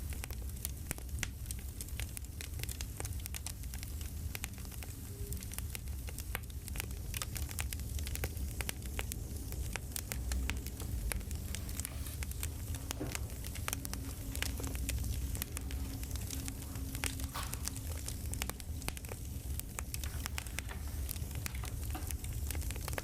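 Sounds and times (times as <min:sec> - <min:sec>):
campfire crackling and popping: 0:00.0 - 0:23.0
low rumble and hiss of fire: 0:00.0 - 0:23.0.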